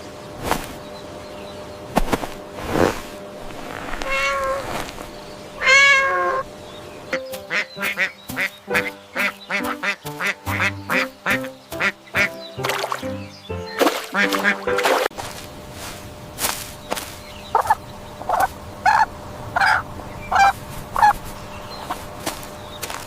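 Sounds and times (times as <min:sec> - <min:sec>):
drawn-out animal calls: 0:05.6 - 0:06.4
bouncy tune of short notes: 0:07.2 - 0:15.1.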